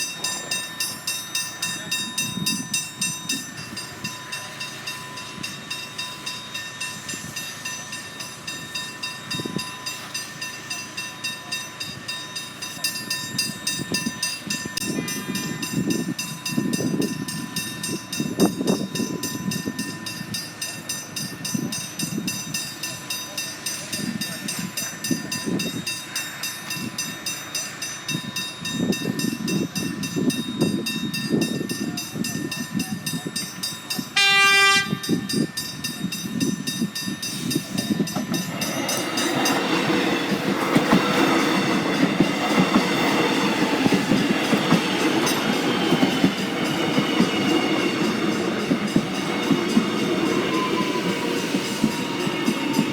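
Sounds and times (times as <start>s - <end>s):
train wheels rumbling: 0.0s - 52.9s
train horn blast: 34.2s - 35.3s.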